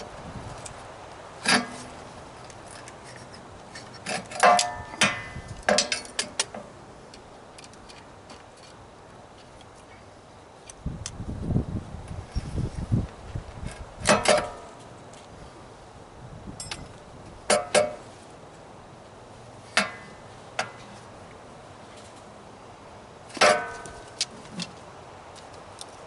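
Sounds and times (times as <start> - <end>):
metal tools clanking: 2.6 - 6.6, 16.6 - 18.0.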